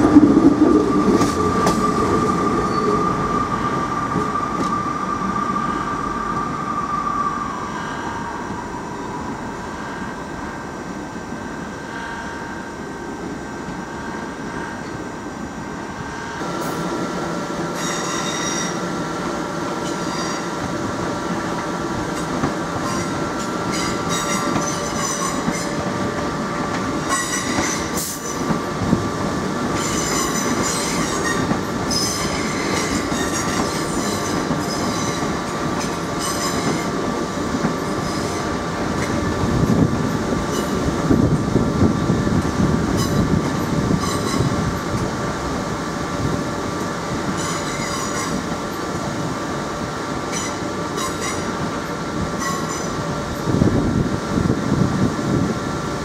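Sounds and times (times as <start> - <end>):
electric train hum: 0.0 - 56.0
low train rumble: 0.0 - 56.0
train wheels squealing: 1.2 - 10.1, 17.8 - 18.8, 19.8 - 20.5, 22.8 - 25.8, 27.1 - 28.5, 29.8 - 36.9, 37.8 - 38.5, 44.0 - 44.5, 47.4 - 48.4, 50.3 - 51.5, 52.4 - 53.0.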